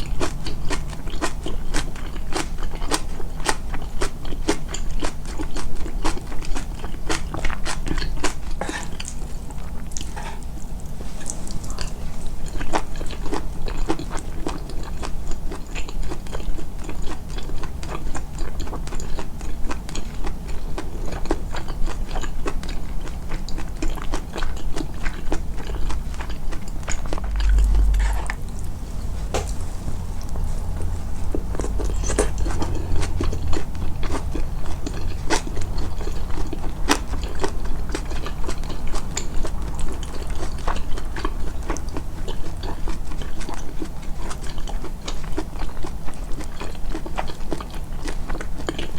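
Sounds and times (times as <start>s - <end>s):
close chewing and crunching: 0.0s - 48.9s
low rumble of jaw working: 0.0s - 48.9s.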